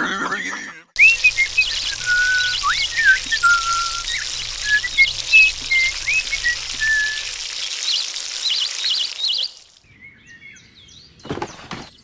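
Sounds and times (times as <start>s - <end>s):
rain hiss: 1.0s - 9.9s
birds chirping and trilling: 1.0s - 12.0s.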